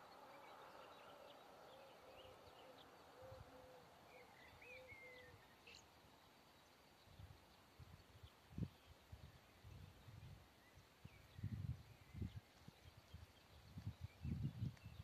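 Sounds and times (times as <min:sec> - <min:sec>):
low bird call: 0:00.0 - 0:05.9.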